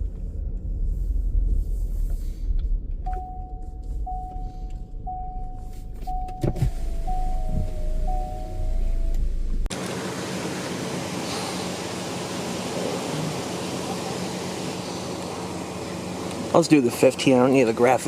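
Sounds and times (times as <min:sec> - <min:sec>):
car engine idling: 0:02.3 - 0:18.0
electronic beep: 0:03.1 - 0:09.3.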